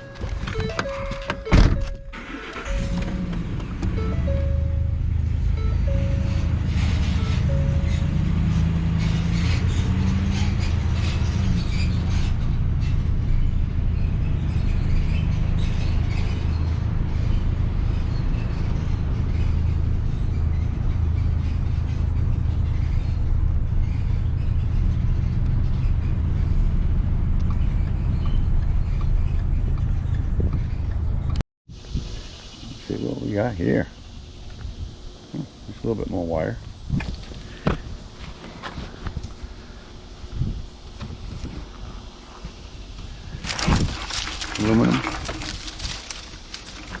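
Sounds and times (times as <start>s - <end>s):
vehicle interior rumble: 0.0s - 33.0s, 33.9s - 47.0s
music playing: 3.9s - 8.1s.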